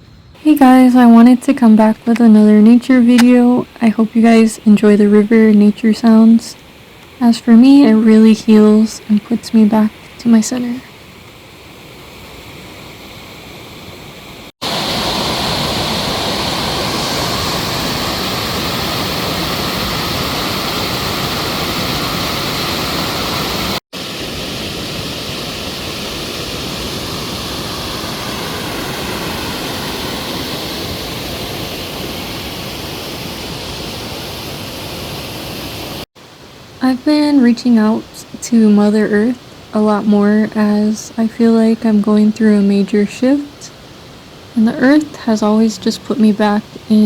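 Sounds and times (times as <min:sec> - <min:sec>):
water rushing over rocks: 0:14.6 - 0:36.6.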